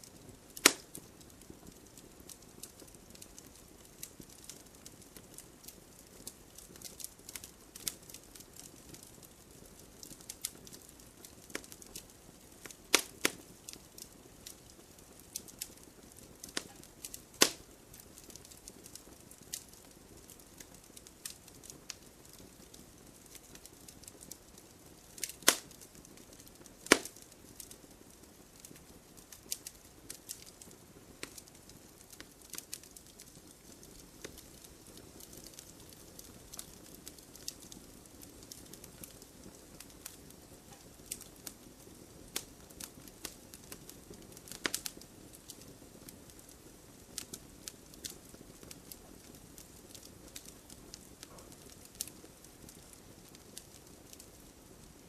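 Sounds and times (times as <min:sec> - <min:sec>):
campfire crackling and popping: 0:00.0 - 0:55.0
faint hiss: 0:00.0 - 0:55.0.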